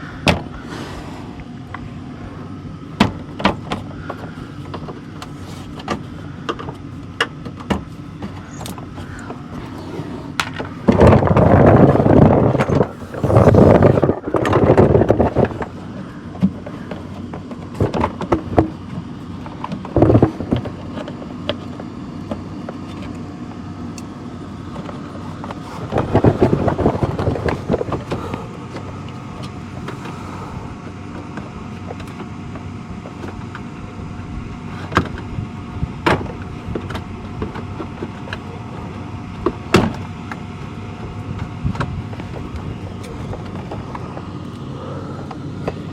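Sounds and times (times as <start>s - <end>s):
steady low hum: 0.0s - 45.9s
scraping and rattling: 7.7s - 21.8s.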